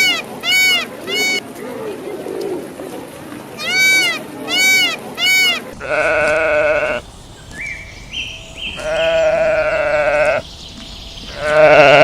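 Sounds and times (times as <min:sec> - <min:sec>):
sheep or goat bleating: 0:03.6 - 0:07.0, 0:08.8 - 0:10.4, 0:11.3 - 0:12.0.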